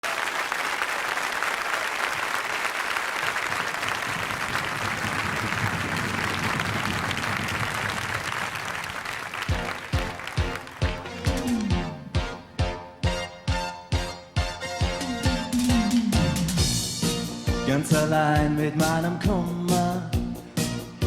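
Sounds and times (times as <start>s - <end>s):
audience applauding: 0.0s - 12.0s
pop song with kick drum: 14.8s - 21.0s.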